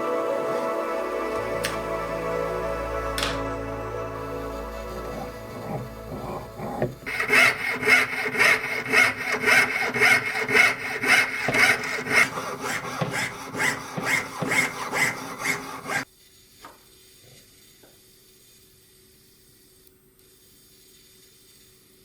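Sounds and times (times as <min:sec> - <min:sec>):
hand saw cutting metal: 0:05.1 - 0:16.0.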